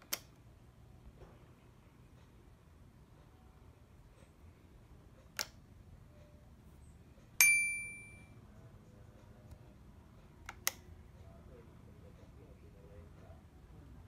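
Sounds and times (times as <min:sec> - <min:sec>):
switch clicks: 0:00.0 - 0:00.4
bell-like ding: 0:07.4 - 0:08.4.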